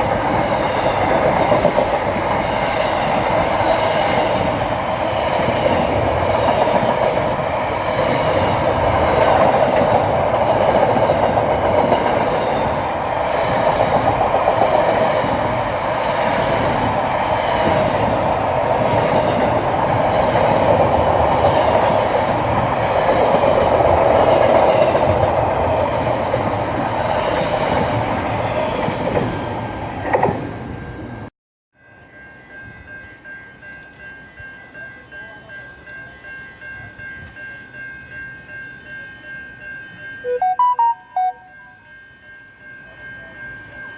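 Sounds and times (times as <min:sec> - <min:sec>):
train rumbling on track: 0:00.0 - 0:31.3.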